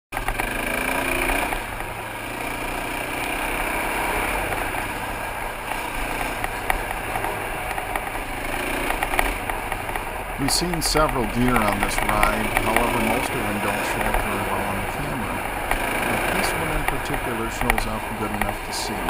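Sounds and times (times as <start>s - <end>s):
motorcycle engine running: 0.1s - 19.0s.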